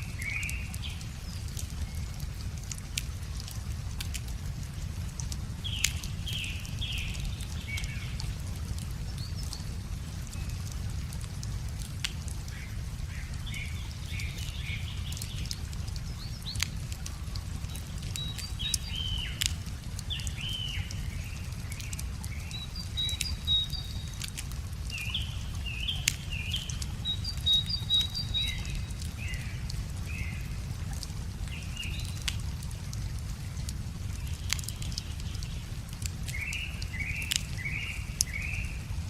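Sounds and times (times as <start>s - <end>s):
small birds chirping: 0.0s - 4.2s, 5.2s - 11.2s, 11.8s - 39.0s
wood fire crackling and popping: 0.6s - 37.6s.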